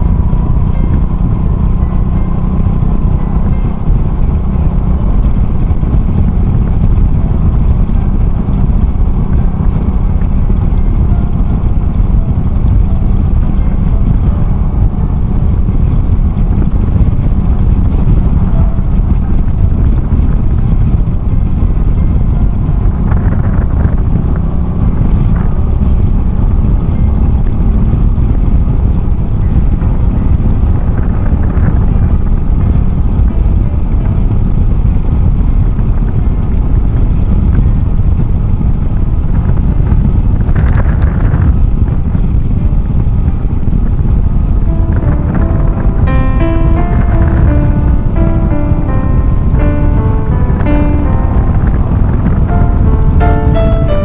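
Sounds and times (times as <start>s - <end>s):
motorcycle engine running: 0.0s - 37.4s
wind rush on microphone: 0.0s - 54.0s.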